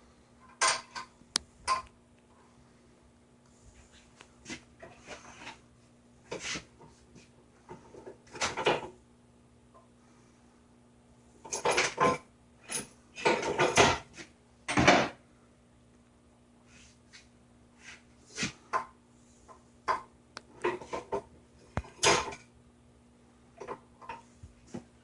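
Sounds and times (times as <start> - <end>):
faint steady hum: 0.0 - 25.0
metal tools clattering: 11.4 - 14.1.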